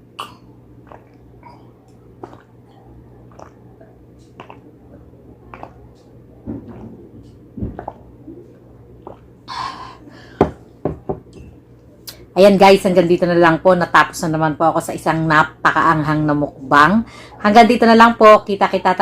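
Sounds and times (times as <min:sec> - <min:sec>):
chewing with wet mouth clicks: 0:00.8 - 0:09.3
soft thumps: 0:06.4 - 0:08.0, 0:10.4 - 0:11.5.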